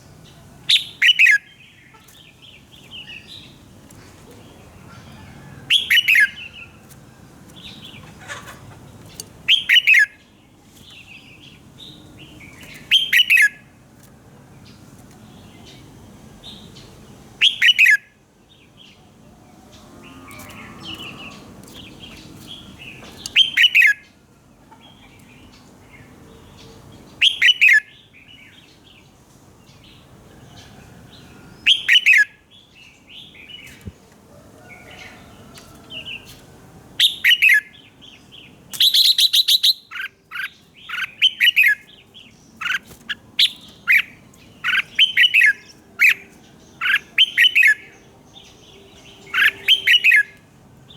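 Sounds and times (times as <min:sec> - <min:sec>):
bulbul singing: 0:00.0 - 0:06.8, 0:09.0 - 0:13.7, 0:19.8 - 0:24.1, 0:37.0 - 0:50.9.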